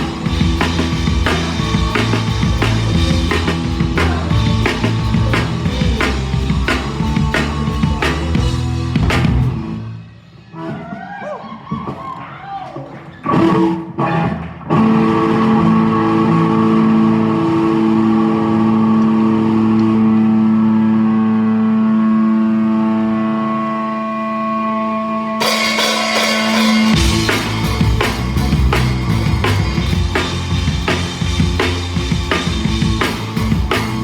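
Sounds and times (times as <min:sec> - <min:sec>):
drums with cymbal hits: 0:00.0 - 0:09.7, 0:25.4 - 0:34.0
rock band playing: 0:00.0 - 0:10.4, 0:25.4 - 0:34.0.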